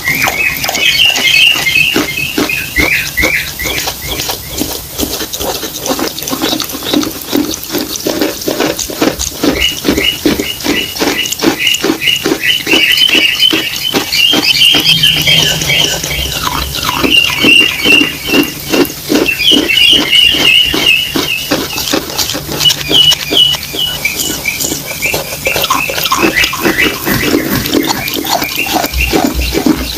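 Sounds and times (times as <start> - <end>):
person chewing wet paste: 0.0 - 29.9.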